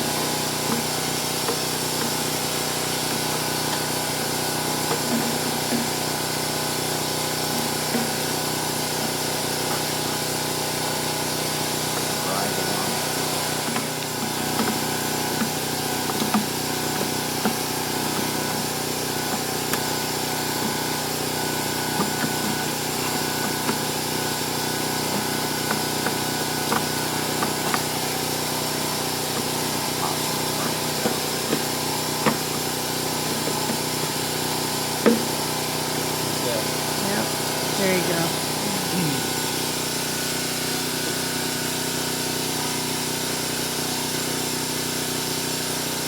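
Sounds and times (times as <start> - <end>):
hand tools clicking and knocking: 0.2 - 4.1, 4.7 - 6.3, 7.6 - 8.4, 12.8 - 35.5.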